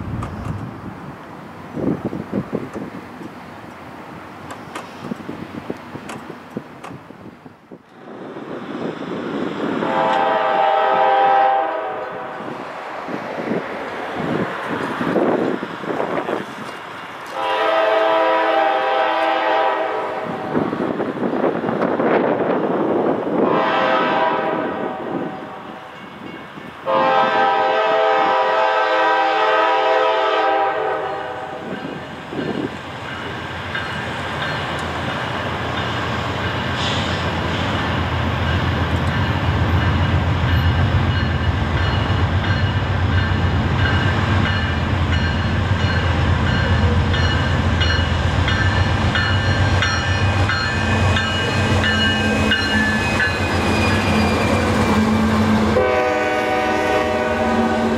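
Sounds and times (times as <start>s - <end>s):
diesel locomotive engines: 0.0s - 57.9s
wheels clicking over rail joints: 2.3s - 7.1s
train horn blasts: 9.8s - 12.5s, 17.3s - 20.6s, 23.4s - 25.8s, 26.8s - 32.0s, 50.6s - 57.9s.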